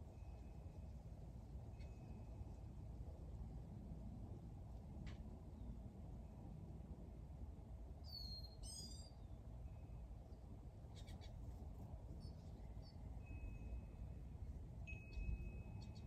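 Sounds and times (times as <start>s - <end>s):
small birds chirping: 10.9s - 11.4s.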